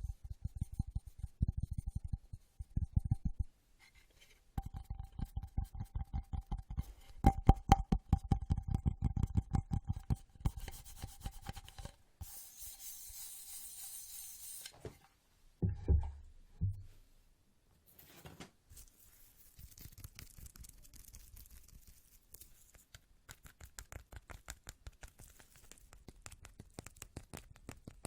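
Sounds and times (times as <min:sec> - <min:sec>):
fast fingertip tapping: 0:00.0 - 0:03.5, 0:04.6 - 0:11.7, 0:22.6 - 0:28.0.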